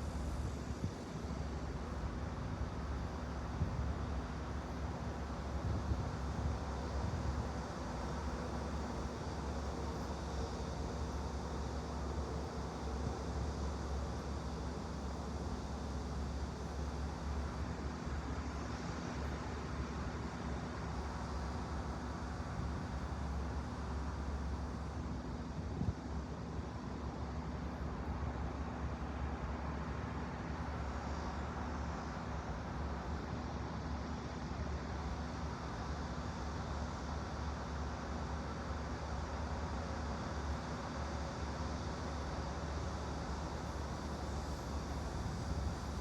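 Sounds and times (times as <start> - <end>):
low hum and hiss: 0.0 - 46.0.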